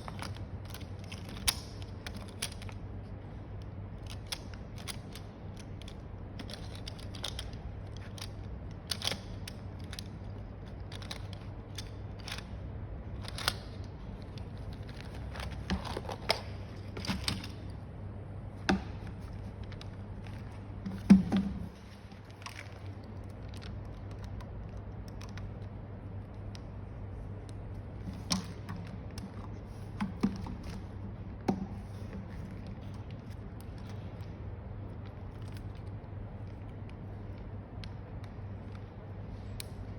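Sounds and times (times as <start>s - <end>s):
packaging clicks and rustles: 0.0s - 39.9s
steady low hum: 0.0s - 39.9s.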